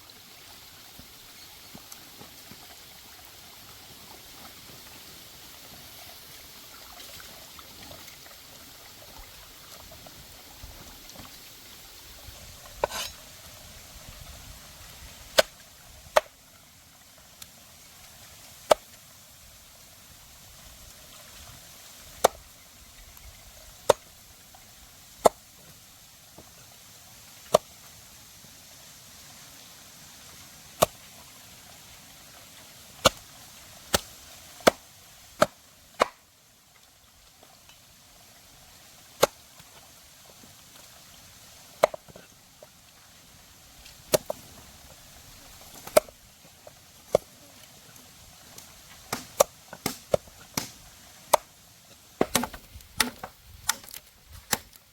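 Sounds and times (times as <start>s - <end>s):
blade chopping strikes: 49.1s - 51.4s, 52.2s - 54.7s.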